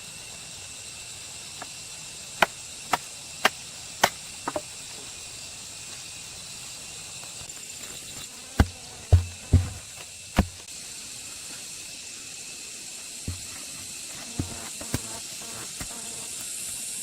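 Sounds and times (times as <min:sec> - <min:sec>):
insects chirring: 0:00.0 - 0:17.0
heavy deep thumps: 0:08.6 - 0:10.6
sharp knocks: 0:08.6 - 0:10.6.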